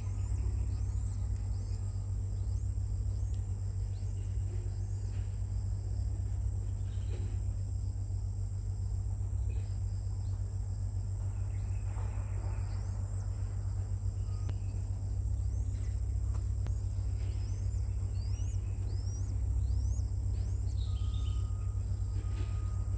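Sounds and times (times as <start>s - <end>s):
low rumble: 0.0s - 22.9s
thin high-pitched whine: 11.3s - 22.9s
high rising bird chirps: 14.1s - 22.9s.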